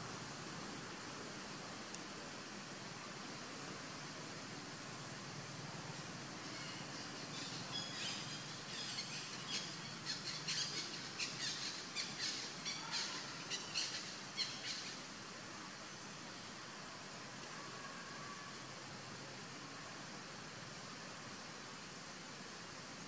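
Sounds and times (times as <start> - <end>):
outdoor ambience hiss: 0.0 - 23.0
bird chirping: 6.5 - 15.0.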